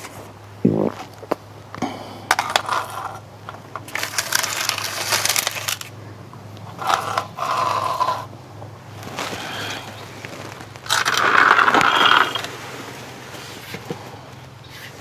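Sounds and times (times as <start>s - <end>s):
long metal scrape: 6.8s - 8.3s, 9.0s - 13.8s.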